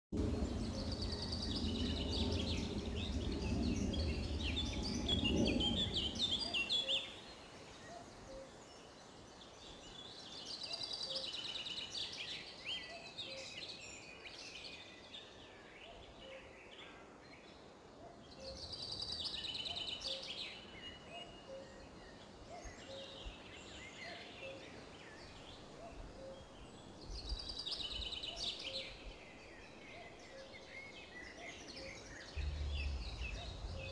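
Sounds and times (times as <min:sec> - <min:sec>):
faint meadow ambience: 0:00.1 - 0:33.9
low microphone rumble: 0:00.2 - 0:06.8, 0:32.4 - 0:33.9
songbird chirping: 0:00.2 - 0:33.9.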